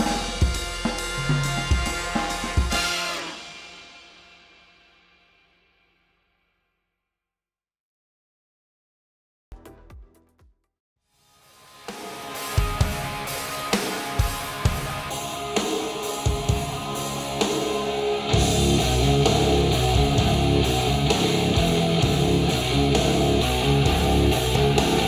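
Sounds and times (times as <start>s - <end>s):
rock band with bass and guitar: 12.1s - 25.0s.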